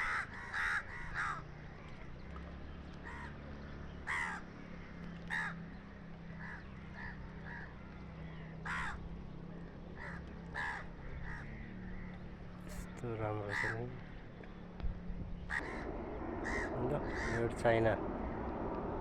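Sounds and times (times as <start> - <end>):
crows cawing: 0.0 - 1.6, 3.0 - 3.4, 4.0 - 14.2, 15.5 - 18.4
steady low rumble: 5.9 - 13.2, 13.9 - 19.0.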